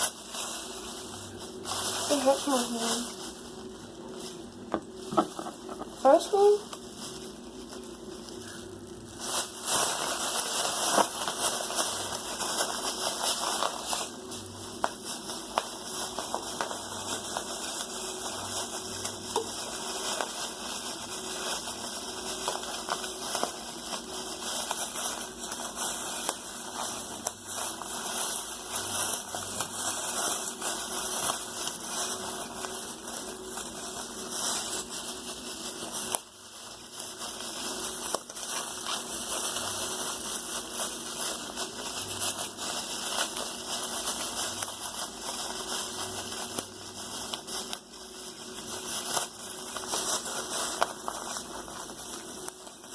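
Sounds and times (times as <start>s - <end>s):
plastic bag crinkling: 0.0s - 52.9s.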